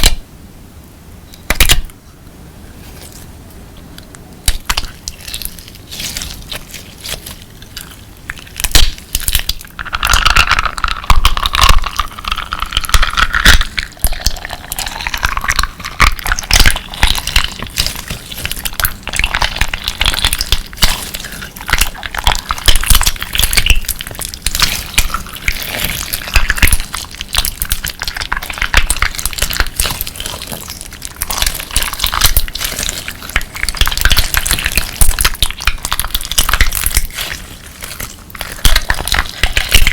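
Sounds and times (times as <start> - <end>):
crunchy slime crackling: 4.4 - 39.9
slime squeaky squelch: 15.8 - 39.9.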